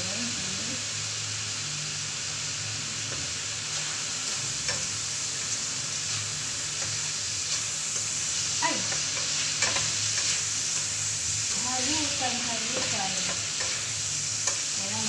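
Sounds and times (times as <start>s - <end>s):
food sizzling in a wok: 0.0s - 15.0s
spatula scraping a pan: 6.0s - 14.7s.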